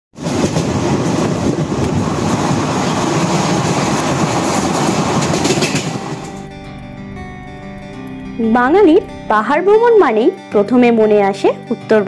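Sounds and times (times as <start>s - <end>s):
train wheels rumbling and rattling: 0.2s - 6.6s
goods train passing: 0.2s - 9.9s.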